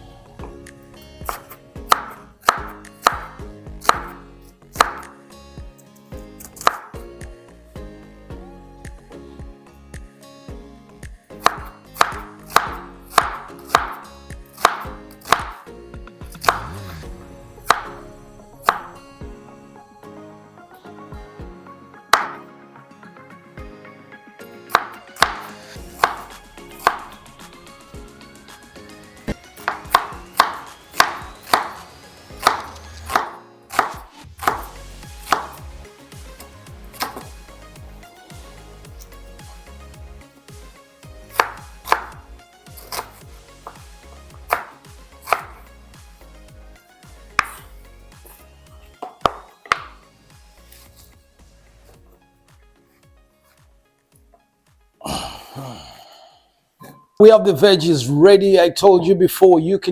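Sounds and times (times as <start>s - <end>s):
knife chopping on cutting board: 1.2s - 4.2s, 4.8s - 5.2s, 6.6s - 6.9s, 11.4s - 14.0s, 14.6s - 15.6s, 16.4s - 17.0s, 17.7s - 18.0s, 18.7s - 19.0s, 22.1s - 22.4s, 24.7s - 27.2s, 29.3s - 35.6s, 37.0s - 37.3s, 41.4s - 42.2s, 42.8s - 43.9s, 44.5s - 45.6s, 47.4s - 47.7s, 49.0s - 50.0s.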